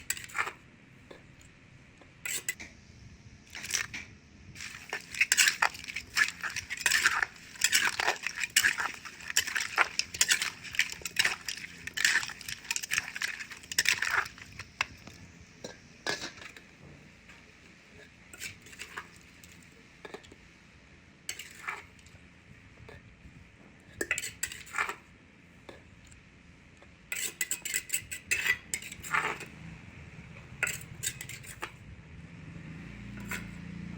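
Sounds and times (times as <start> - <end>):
utensils clinking and scraping: 0.0 - 1.2, 2.2 - 2.6, 3.5 - 4.0, 4.6 - 16.7, 17.9 - 20.4, 21.3 - 22.1, 24.0 - 25.0, 27.1 - 29.7, 30.4 - 31.8, 33.1 - 33.6.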